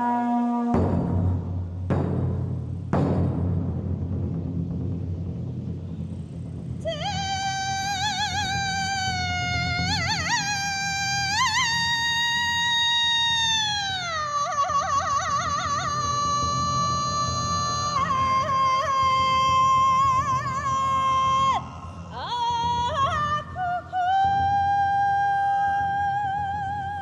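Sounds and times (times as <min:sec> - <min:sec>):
woman singing long high notes: 0:00.0 - 0:00.8, 0:06.8 - 0:27.0.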